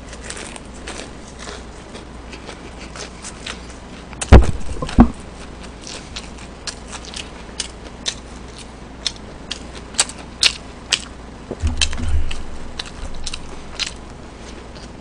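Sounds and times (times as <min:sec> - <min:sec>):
chewing with mouth clicks: 0:00.1 - 0:04.3, 0:05.4 - 0:15.0
loud thumps: 0:04.3 - 0:05.4, 0:11.5 - 0:14.5.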